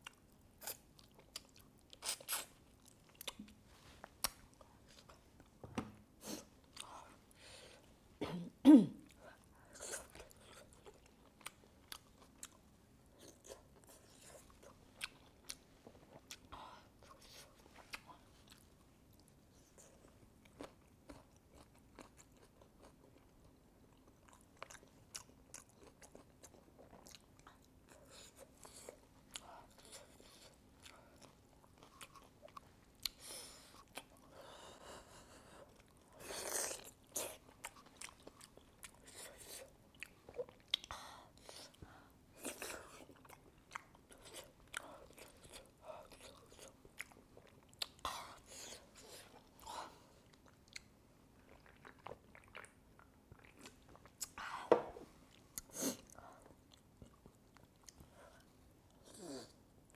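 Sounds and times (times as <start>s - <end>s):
person chewing with wet mouth clicks: 40.0s - 40.9s, 42.4s - 48.0s, 50.3s - 54.4s.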